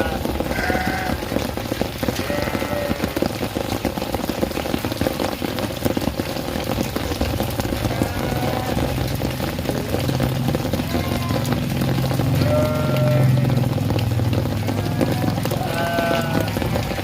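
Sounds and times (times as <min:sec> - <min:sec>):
rain falling and dripping: 0:00.0 - 0:17.0
low engine hum: 0:07.1 - 0:17.0.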